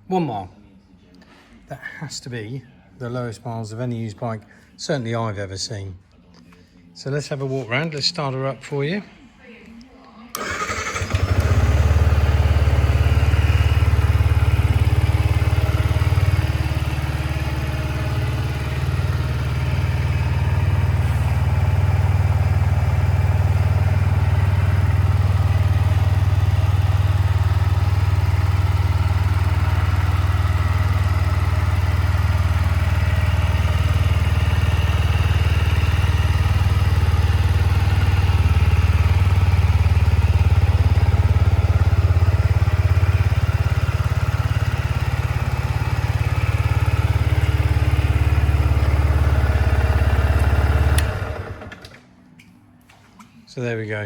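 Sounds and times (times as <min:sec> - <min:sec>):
motorcycle engine idling: 0:10.4 - 0:51.8.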